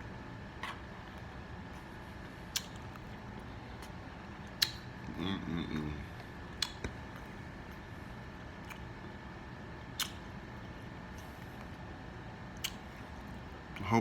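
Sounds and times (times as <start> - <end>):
mouth clicks and smacks: 0.6 - 7.9, 8.5 - 9.0, 9.9 - 11.8, 12.5 - 13.9
person humming: 5.0 - 6.2.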